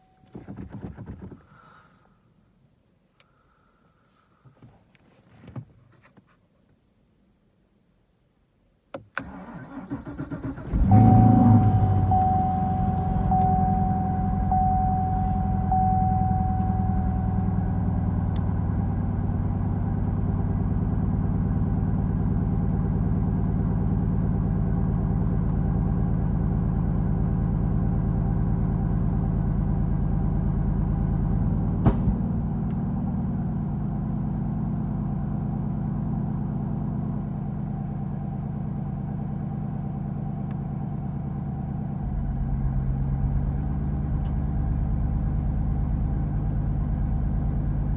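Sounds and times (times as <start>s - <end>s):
car engine idling: 10.0s - 32.7s, 42.0s - 47.9s
faint high whine: 10.6s - 18.3s
sharp engine pop: 31.8s - 32.5s.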